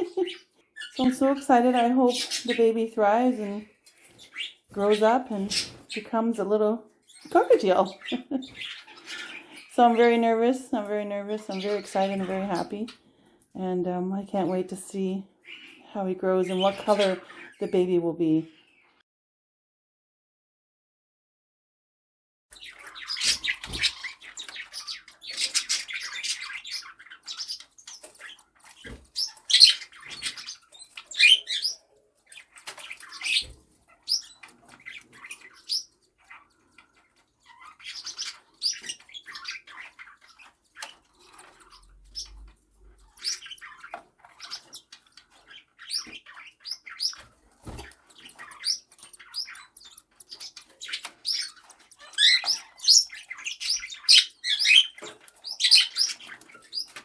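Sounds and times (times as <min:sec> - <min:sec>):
cockatiels chirping: 0:00.0 - 0:01.4, 0:02.1 - 0:02.7, 0:03.8 - 0:06.1, 0:07.1 - 0:10.1, 0:22.5 - 0:57.0.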